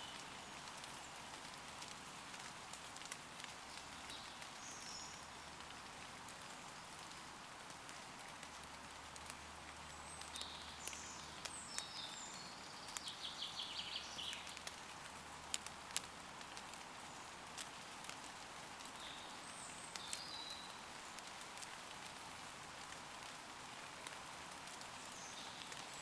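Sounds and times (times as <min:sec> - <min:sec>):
rain falling on leaves: 0:00.0 - 0:26.0
bird singing: 0:10.1 - 0:14.6, 0:19.0 - 0:20.8.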